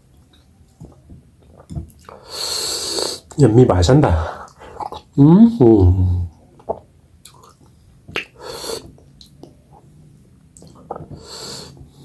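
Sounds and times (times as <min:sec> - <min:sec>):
chewing and lip smacks: 0:06.6 - 0:11.2.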